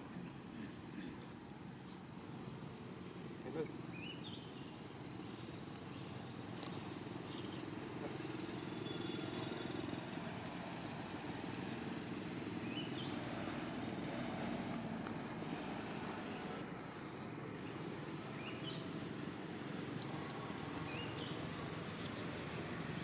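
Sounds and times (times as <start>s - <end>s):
vehicle engine humming: 0.0s - 23.0s
faint high chirp: 8.4s - 9.8s.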